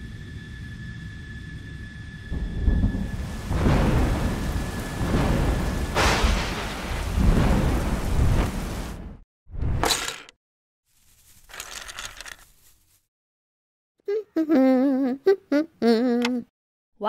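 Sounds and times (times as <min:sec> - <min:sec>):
steady drone with high tone: 0:00.0 - 0:03.4
thunder crashes: 0:02.2 - 0:09.2
heavy rain: 0:02.6 - 0:09.2.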